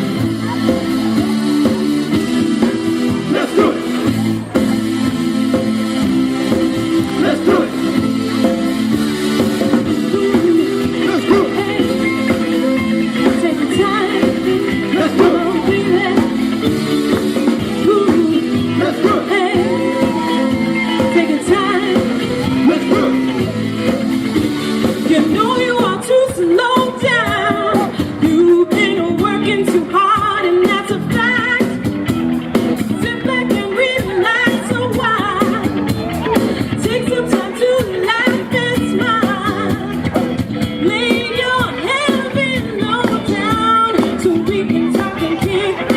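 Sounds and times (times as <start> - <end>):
live band playing pop-rock: 0.0 - 45.9
person singing: 6.5 - 8.5, 9.6 - 24.0, 24.9 - 31.8, 40.8 - 45.9.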